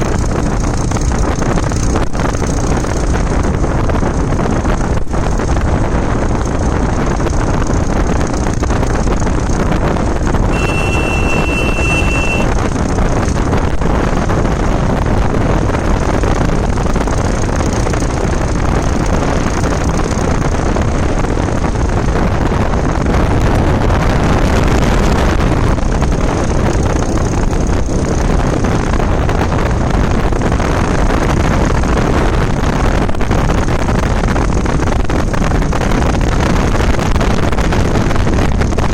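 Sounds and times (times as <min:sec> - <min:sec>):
motorbike road noise: 0:00.0 - 0:38.9
wind rushing over microphone: 0:00.0 - 0:38.9
high steady tone: 0:10.5 - 0:12.6.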